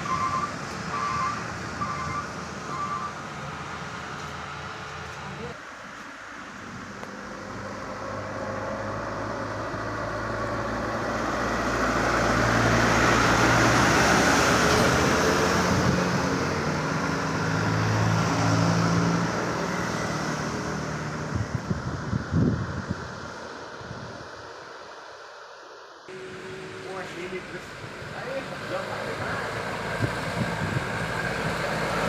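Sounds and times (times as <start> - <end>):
heavy trucks driving past: 0.0 - 32.0
wind buffeting microphone: 21.2 - 24.4, 29.8 - 31.6.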